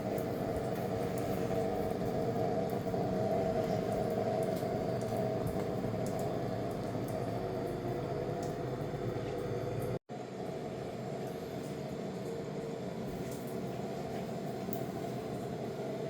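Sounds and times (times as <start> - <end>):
machine whirring hum: 0.0 - 16.0.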